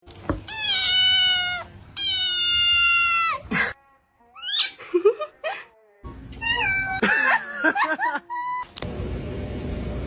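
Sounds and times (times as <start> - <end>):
cat meowing: 0.5 - 3.4, 6.4 - 7.0.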